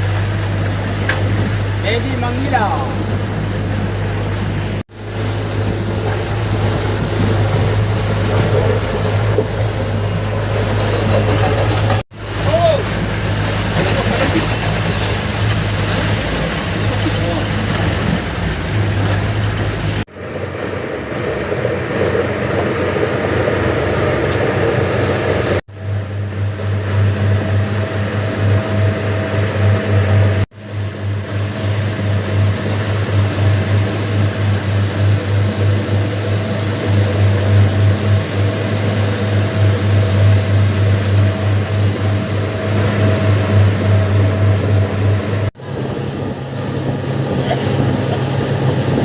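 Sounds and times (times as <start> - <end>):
boat engine humming: 0.0 - 49.0
water wash: 0.0 - 49.0
wind noise: 31.1 - 49.0.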